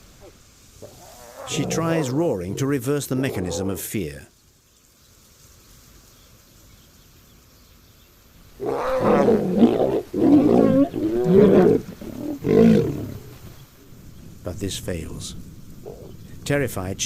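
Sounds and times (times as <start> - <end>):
lioness roaring: 0.2 - 3.8, 8.6 - 13.4.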